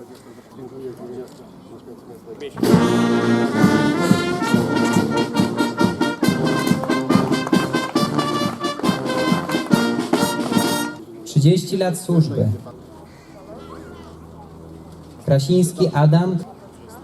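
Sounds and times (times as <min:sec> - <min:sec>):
brass band fanfare: 0:02.6 - 0:11.0.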